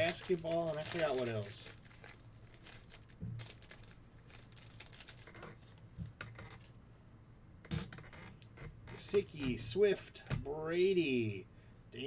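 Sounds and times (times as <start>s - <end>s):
foil wrappers rustling and crinkling: 0.0s - 5.8s.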